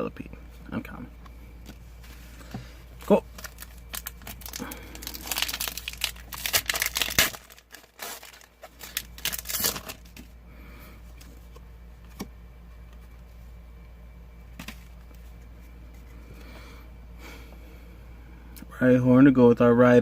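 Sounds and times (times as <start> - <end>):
foil wrapper crinkling and tearing: 3.1 - 10.3.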